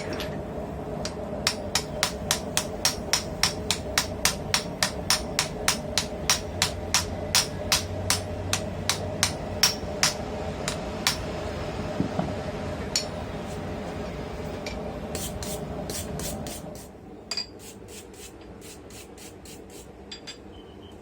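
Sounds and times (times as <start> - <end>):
steady hum: 0.0 - 21.0
hammer striking hot steel on anvil: 1.0 - 11.4, 12.9 - 13.2.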